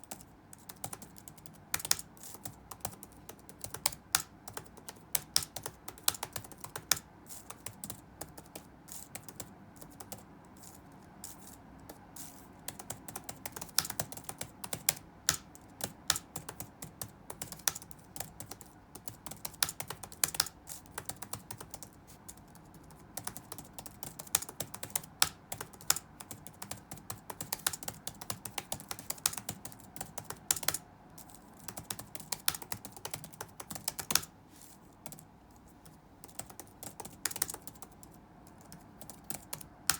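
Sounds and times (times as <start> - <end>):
keyboard key clicks: 36.3 - 37.9.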